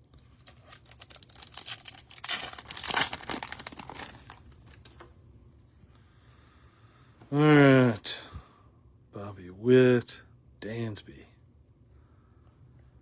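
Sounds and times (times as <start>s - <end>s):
wrapper tearing and rustling: 0.2s - 5.0s.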